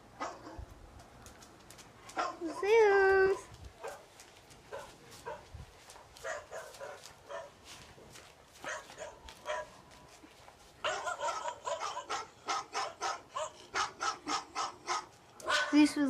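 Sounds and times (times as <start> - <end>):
dog barking through phone speaker: 2.2 - 2.5, 6.2 - 7.6, 8.6 - 9.8, 10.8 - 15.9.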